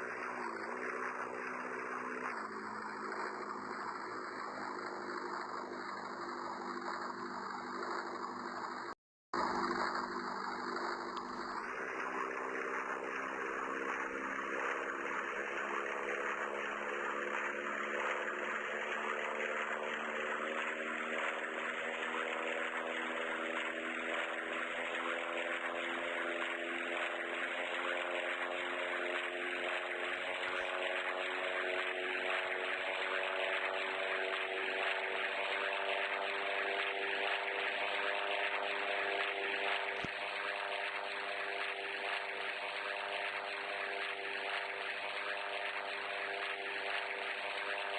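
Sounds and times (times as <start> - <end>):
aircraft engine droning: 0.0 - 47.9.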